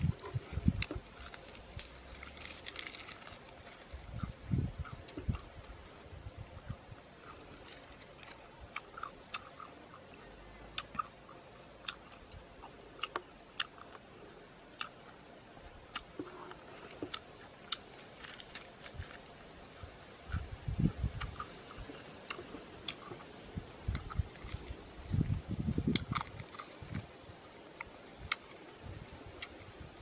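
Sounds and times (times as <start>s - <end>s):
person biting and chewing meat: 0.0s - 5.8s, 15.9s - 27.2s.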